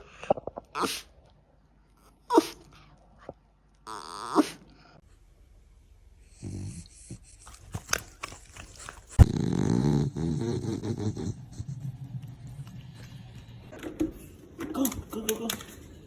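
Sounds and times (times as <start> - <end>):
dog vocalising: 0.7 - 1.1, 2.2 - 2.7, 3.8 - 4.7.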